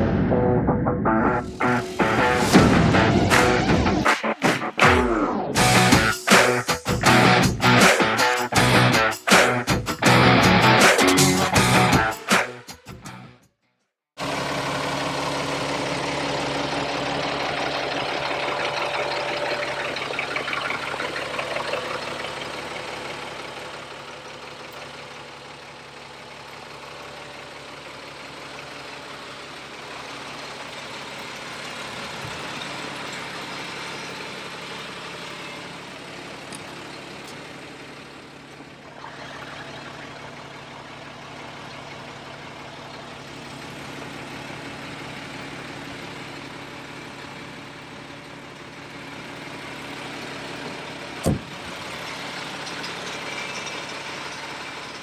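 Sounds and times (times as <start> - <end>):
diesel truck engine idling: 14.2 - 55.0.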